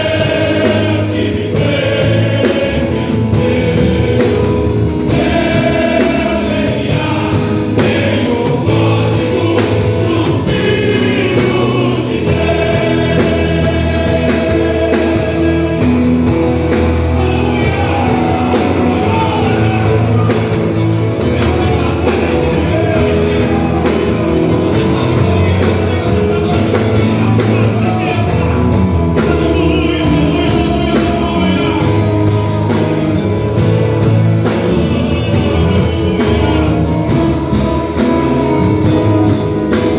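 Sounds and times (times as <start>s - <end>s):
band accompaniment: 0.0s - 39.9s
choir singing gospel: 0.0s - 39.9s.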